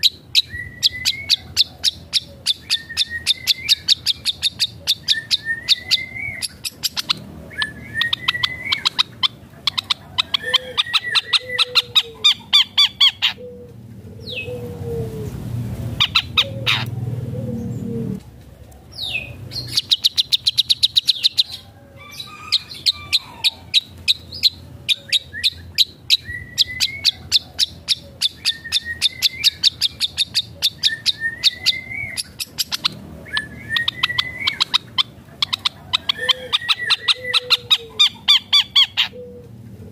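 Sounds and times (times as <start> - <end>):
bird singing chattering notes: 0.0 - 14.7, 16.0 - 18.2, 18.9 - 21.6, 22.2 - 39.6
low rumbling noise: 0.0 - 39.9
bird rising whistles: 7.6 - 9.0, 26.2 - 27.2, 28.3 - 30.0.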